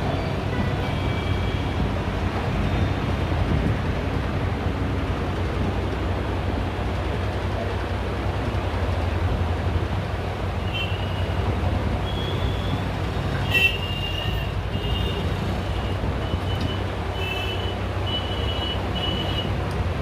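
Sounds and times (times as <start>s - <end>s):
steady low rumble: 1.6s - 10.5s.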